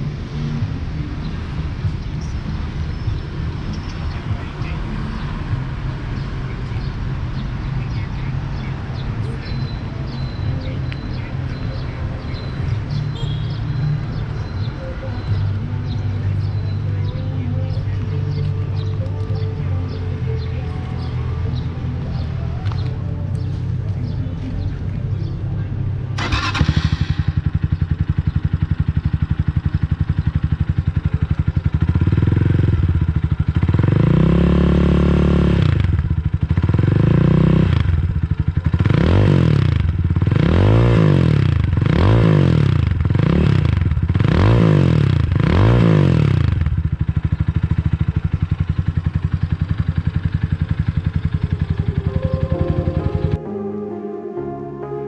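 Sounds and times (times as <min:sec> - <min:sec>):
motorcycle engine revving: 0:26.2 - 0:53.4.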